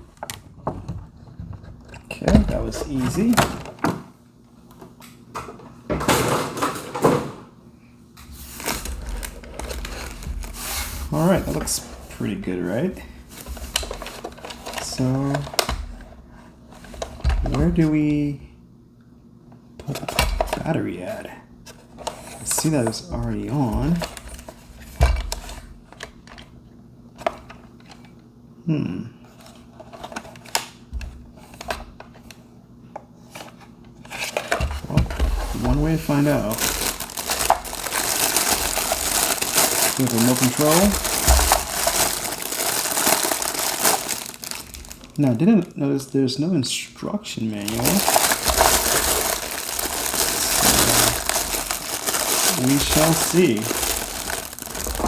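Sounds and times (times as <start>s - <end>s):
packaging rustling: 8.4s - 12.4s, 13.3s - 16.0s, 22.0s - 25.5s, 34.2s - 45.4s, 47.5s - 55.0s.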